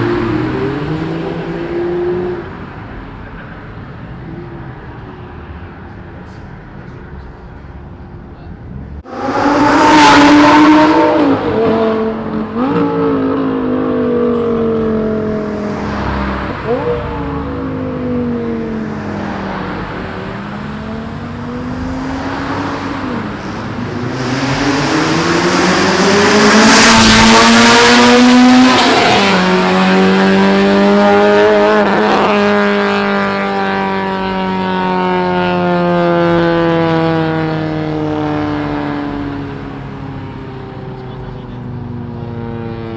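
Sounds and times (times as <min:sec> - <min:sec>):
loud car exhaust revving: 0:09.0 - 0:38.6.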